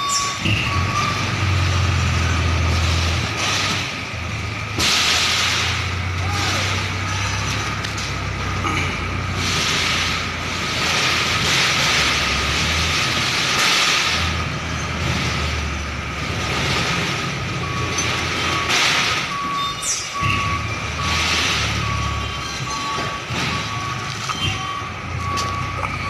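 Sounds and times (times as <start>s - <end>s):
reversing beeper: 0.0s - 2.7s, 17.6s - 26.0s
truck diesel engine reversing: 0.0s - 26.0s.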